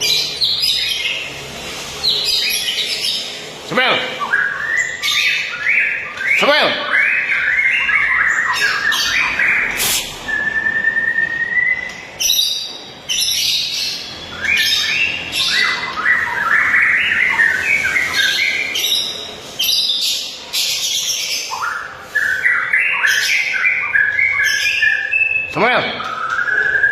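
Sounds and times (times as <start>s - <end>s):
bird singing varied song: 0.0s - 26.9s.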